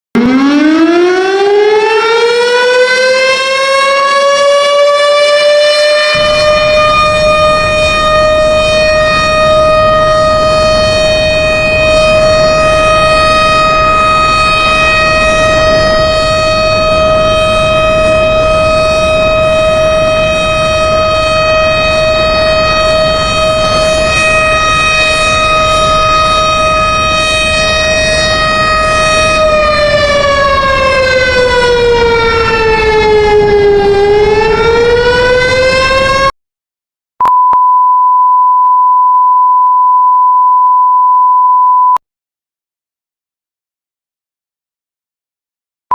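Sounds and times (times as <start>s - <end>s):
warning siren: 0.2s - 36.4s
steady high beep: 37.2s - 42.0s.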